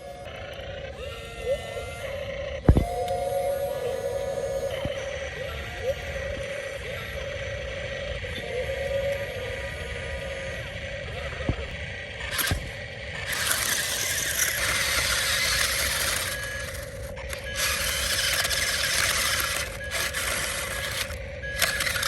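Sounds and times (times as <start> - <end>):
steady machinery hum: 0.0 - 22.0
construction machinery scraping: 12.3 - 22.0.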